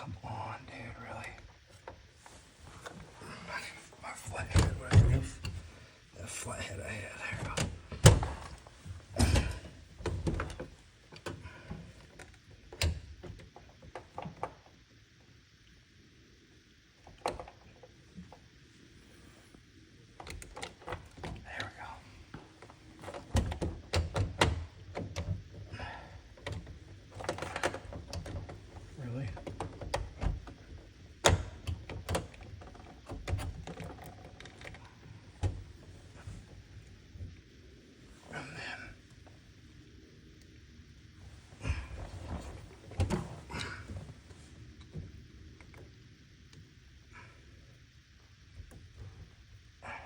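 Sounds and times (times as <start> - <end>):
clicks and knocks of tools and plastic: 26.3 - 35.7.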